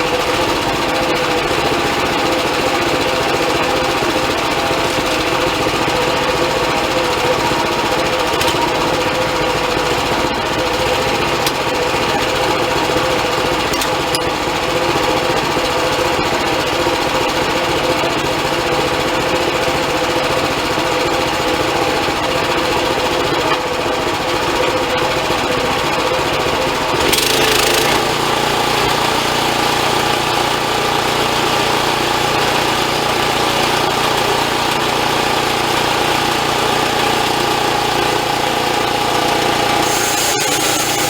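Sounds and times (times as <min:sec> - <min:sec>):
band sawmill humming: 0:26.9 - 0:31.8, 0:38.1 - 0:41.0.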